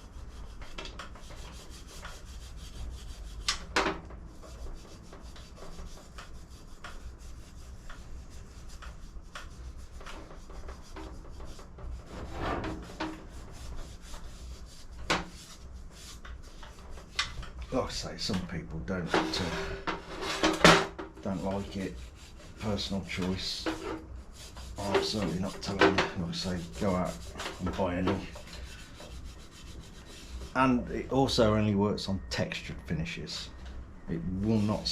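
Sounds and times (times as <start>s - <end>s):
rag rubbing on metal: 0.0s - 31.6s, 33.3s - 34.9s.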